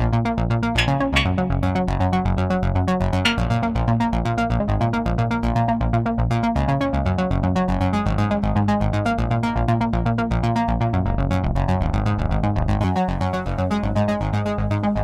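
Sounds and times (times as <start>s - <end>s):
synthesizer sequenced notes: 0.0s - 7.2s
steady synth bass line: 0.0s - 15.0s.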